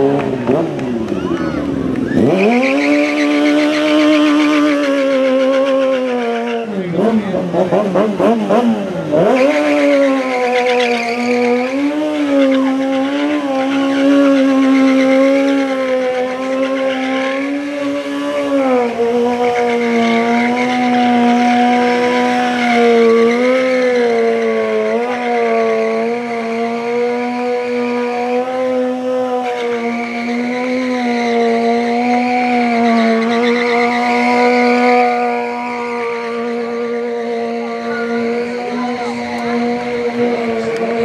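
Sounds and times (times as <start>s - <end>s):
motorcycle engine at high revs: 0.0s - 41.0s.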